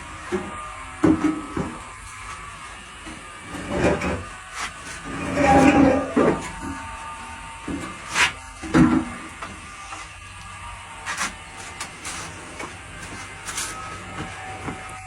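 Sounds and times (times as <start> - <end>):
short knocks and scrapes: 3.5 - 6.8.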